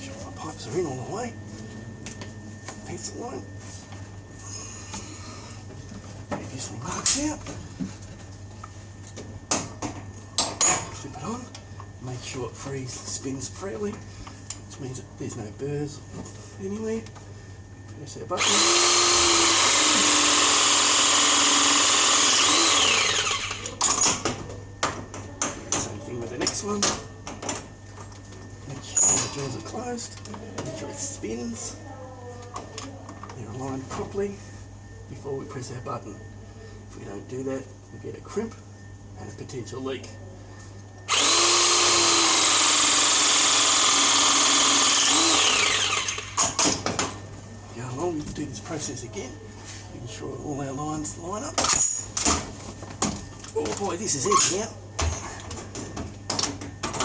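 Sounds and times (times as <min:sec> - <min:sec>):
press tool motor whining: 0:18.4 - 0:24.2, 0:41.1 - 0:46.6.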